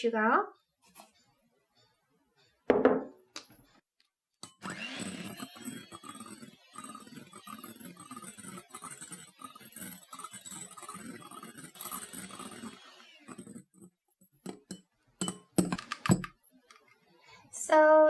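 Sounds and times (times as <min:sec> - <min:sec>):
whisking egg whites in bowl: 0:04.4 - 0:16.1.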